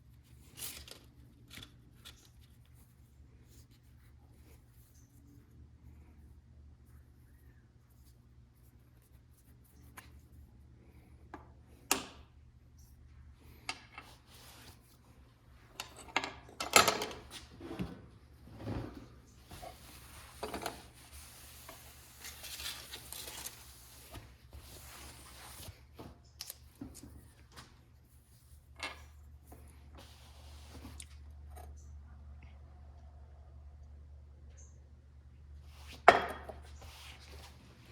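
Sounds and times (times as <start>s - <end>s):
clicks and knocks of handled parts: 15.7s - 17.5s.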